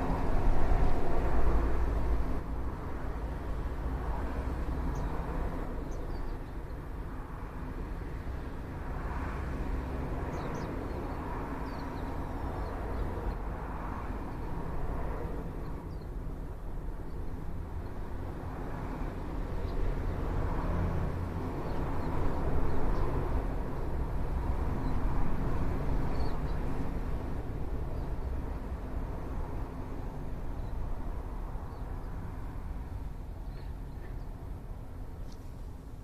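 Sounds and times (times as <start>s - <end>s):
small songbirds chirping: 4.7s - 7.2s, 10.0s - 14.7s, 15.5s - 18.1s, 19.5s - 20.2s, 21.5s - 24.0s, 24.7s - 25.1s, 25.8s - 26.9s, 27.8s - 28.7s, 30.4s - 32.4s, 33.0s - 36.0s.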